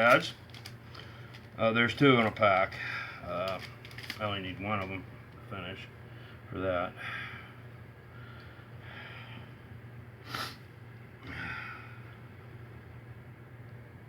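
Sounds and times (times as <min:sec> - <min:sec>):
steady low hum: 0:00.0 - 0:14.0
man breathing: 0:02.7 - 0:03.3, 0:06.1 - 0:10.6, 0:11.2 - 0:12.2
sharp sniff: 0:10.2 - 0:10.6.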